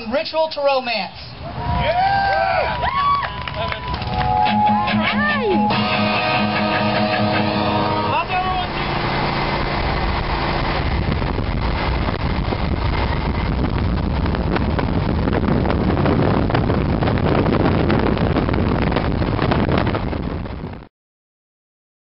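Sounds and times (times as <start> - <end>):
motorcycle engines running: 3.8 - 20.6.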